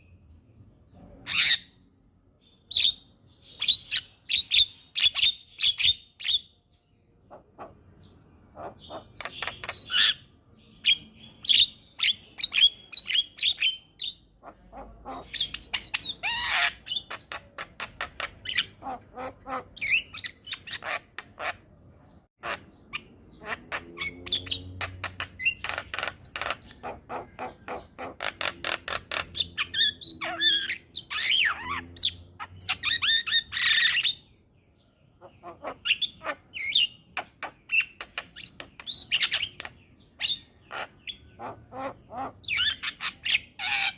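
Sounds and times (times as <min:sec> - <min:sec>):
bird harsh clicking chatter: 0:08.6 - 0:10.1, 0:24.8 - 0:29.4, 0:37.2 - 0:39.8.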